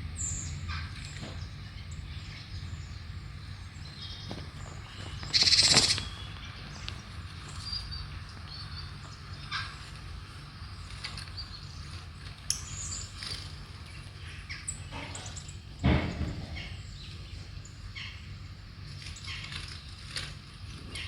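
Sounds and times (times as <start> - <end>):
steady low hum: 0.0 - 21.0
bird chirps through a speaker: 4.9 - 6.4.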